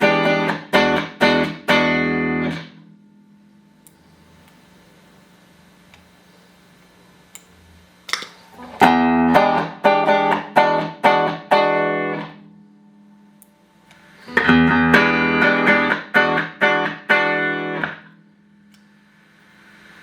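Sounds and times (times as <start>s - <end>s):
electric guitar chord stabs: 0.0s - 4.2s, 8.6s - 18.7s
faint amp hum: 0.0s - 20.0s.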